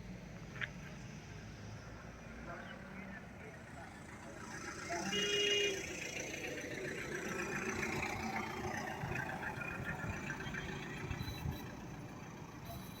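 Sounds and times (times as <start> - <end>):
road noise: 0.0 - 13.0
truck engine running: 3.8 - 13.0.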